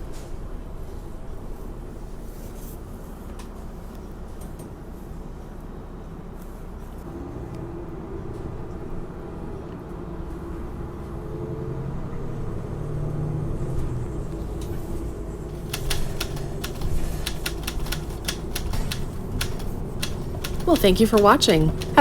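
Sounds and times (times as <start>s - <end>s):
bus engine rumbling: 0.1s - 22.0s
sharp clicks: 14.3s - 22.0s.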